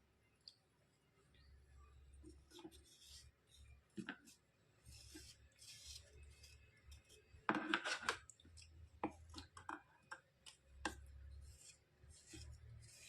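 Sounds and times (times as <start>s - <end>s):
slate pencils scraping: 4.9s - 8.3s, 11.3s - 13.0s
slate pencils clicking and tapping: 6.9s - 11.7s.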